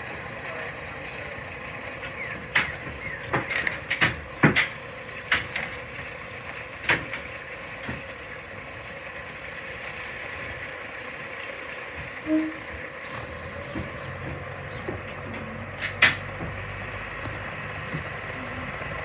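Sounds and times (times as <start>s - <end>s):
steady mechanical hum: 0.0s - 19.0s
sharp knocks and clanks: 1.4s - 8.5s, 11.9s - 18.4s.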